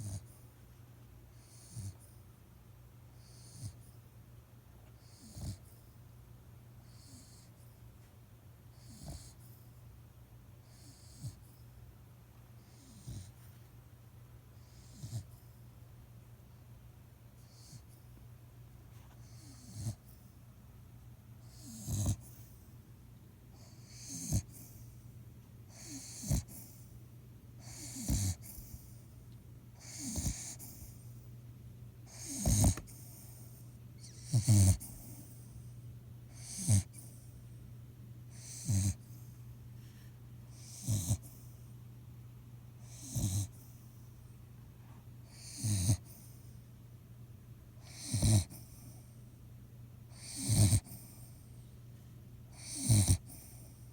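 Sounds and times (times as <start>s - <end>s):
dog snoring: 0.0s - 0.4s, 1.3s - 2.2s, 3.2s - 4.0s, 4.9s - 5.8s, 6.8s - 7.7s, 8.7s - 9.5s, 10.6s - 11.6s, 12.6s - 13.5s, 14.6s - 15.5s, 17.4s - 18.0s, 19.2s - 20.2s, 21.4s - 22.6s, 23.5s - 24.9s, 25.7s - 26.9s, 27.6s - 29.0s, 29.8s - 31.2s, 32.0s - 35.6s, 36.3s - 37.3s, 38.3s - 39.3s, 40.5s - 41.6s, 42.8s - 43.9s, 45.2s - 46.6s, 47.8s - 49.2s, 50.1s - 51.5s, 52.5s - 53.9s.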